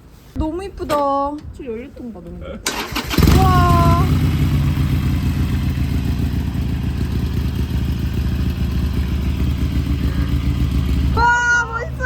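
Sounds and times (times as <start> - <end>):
motorcycle engine idling: 2.7 - 12.0.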